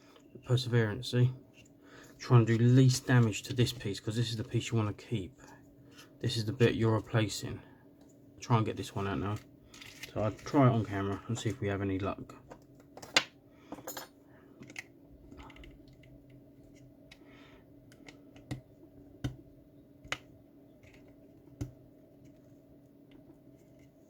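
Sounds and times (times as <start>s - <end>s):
faint steady hum: 0.0s - 24.0s
soft scratching: 8.8s - 11.8s.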